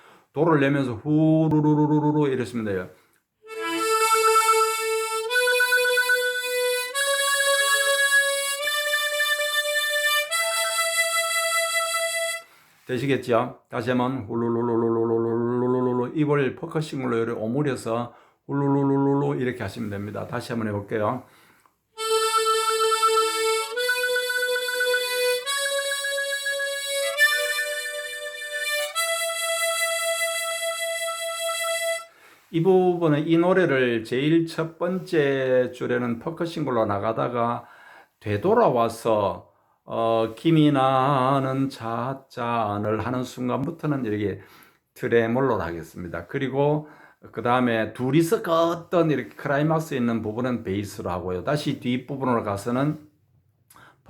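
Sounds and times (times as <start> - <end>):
harmonica tremolo notes: 3.4 - 12.8, 22.0 - 32.5.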